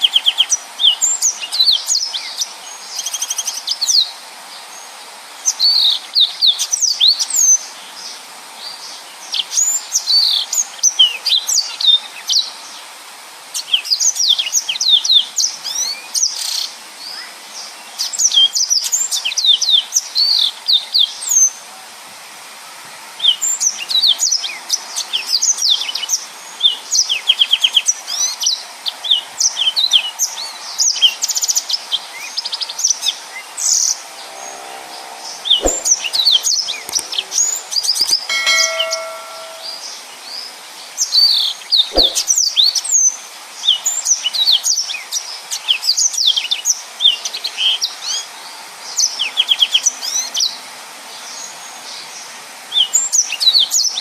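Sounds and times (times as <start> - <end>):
brief ringing tone: 34.0 - 37.2, 38.3 - 40.0, 42.0 - 42.3.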